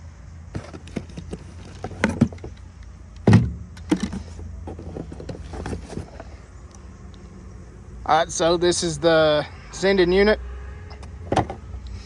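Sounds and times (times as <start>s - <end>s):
parts knocking and clattering: 0.5s - 6.3s, 11.2s - 11.6s.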